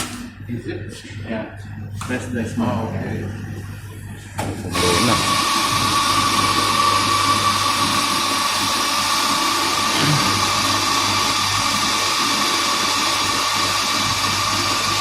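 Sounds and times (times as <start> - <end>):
coffee grinder whining: 4.7 - 15.0.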